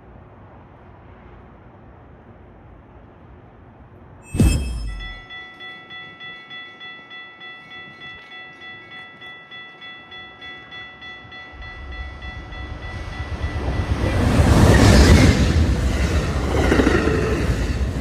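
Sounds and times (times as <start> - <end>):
railroad crossing bell ringing: 4.3 - 18.0
train rumble: 11.0 - 18.0.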